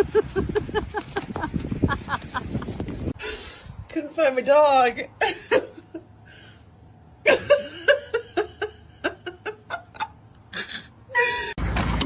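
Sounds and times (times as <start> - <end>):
person laughing: 0.0 - 3.1, 5.2 - 6.1, 7.3 - 11.6.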